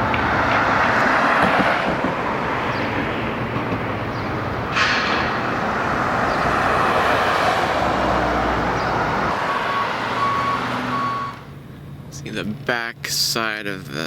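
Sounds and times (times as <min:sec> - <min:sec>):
vehicle passing close by: 0:00.0 - 0:11.4
road traffic noise: 0:00.0 - 0:14.0
reversing beeper beeps: 0:09.4 - 0:11.5.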